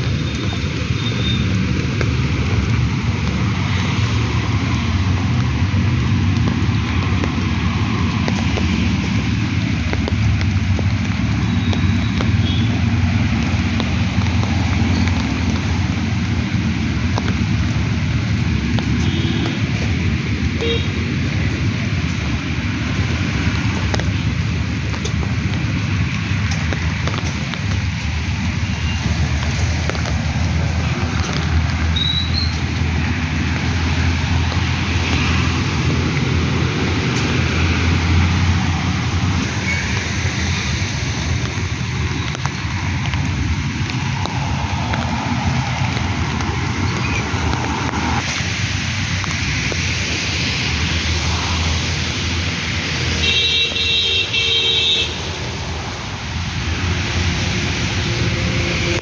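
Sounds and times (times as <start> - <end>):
low traffic rumble: 0.0 - 59.0
steady rain: 0.0 - 59.0
vehicle horn toots: 20.6 - 21.0.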